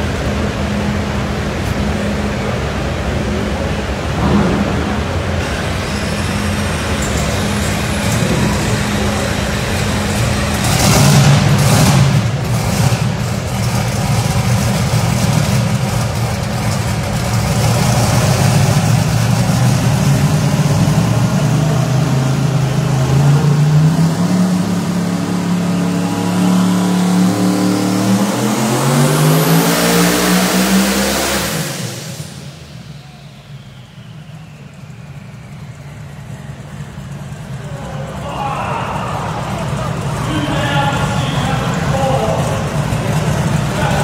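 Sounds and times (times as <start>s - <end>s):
car engine revving on dyno: 0.0s - 44.0s
faint whine: 31.8s - 44.0s.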